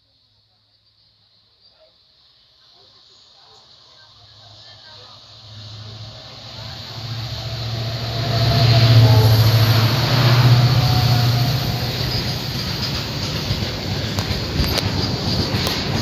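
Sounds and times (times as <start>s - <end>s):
diesel locomotive engine drone: 4.0s - 16.0s
freight wagons rumbling on rails: 4.4s - 16.0s.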